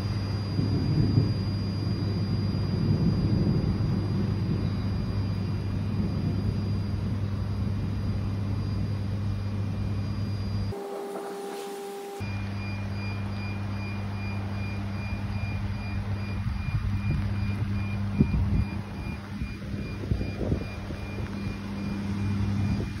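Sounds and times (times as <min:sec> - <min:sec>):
faint high beep: 0:10.7 - 0:23.0.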